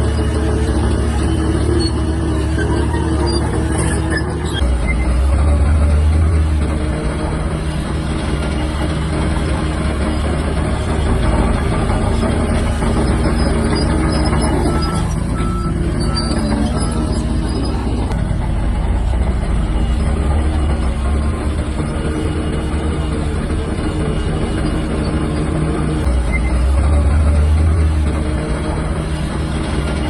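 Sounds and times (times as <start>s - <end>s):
bulldozer diesel engine running: 0.0s - 30.0s
reversing beeps: 13.4s - 18.2s, 19.4s - 27.1s.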